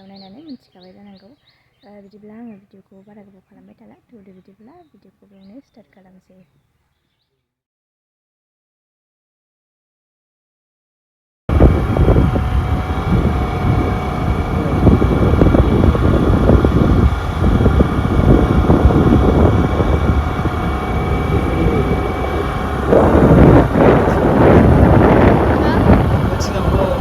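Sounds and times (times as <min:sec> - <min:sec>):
vehicle running hum: 0:11.5 - 0:27.0
wind buffeting microphone: 0:11.5 - 0:27.0.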